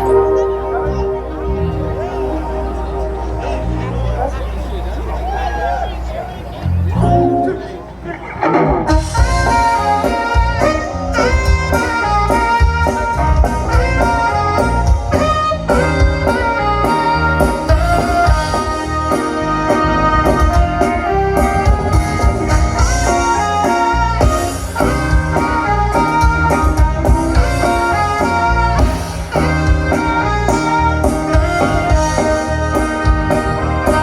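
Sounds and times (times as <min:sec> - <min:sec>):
band playing instrumental music: 0:00.0 - 0:34.0
steady drum beat: 0:08.9 - 0:34.0.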